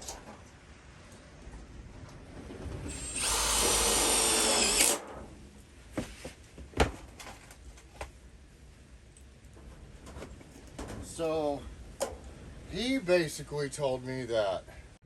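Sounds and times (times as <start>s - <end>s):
power drill whining: 2.9s - 5.0s.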